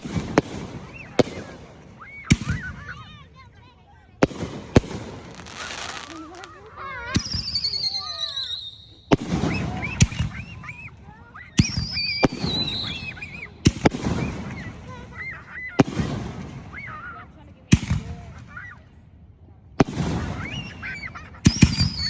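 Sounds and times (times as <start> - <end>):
fireworks banging: 0.0 - 3.3, 4.2 - 10.7, 11.5 - 17.0, 19.8 - 22.0
people's voices: 0.0 - 22.0
falling firework whistles: 4.8 - 14.8, 19.8 - 22.0.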